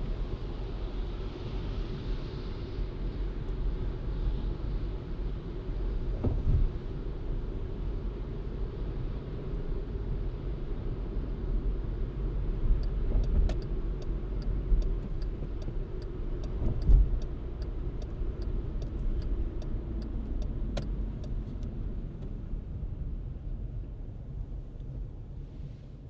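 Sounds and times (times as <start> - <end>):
engine and tyres rumbling: 0.0 - 26.0
light regular ticking: 11.9 - 22.4.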